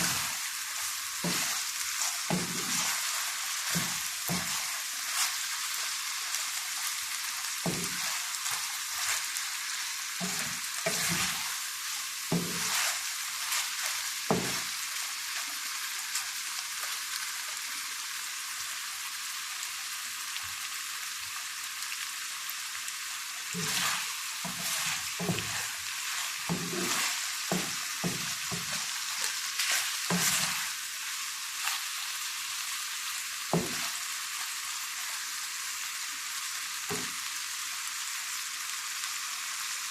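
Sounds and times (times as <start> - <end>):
spatula scraping a pan: 0.0 - 16.3, 23.5 - 30.9, 31.6 - 32.1, 33.5 - 35.2
chicken sizzling in oil: 0.0 - 39.9.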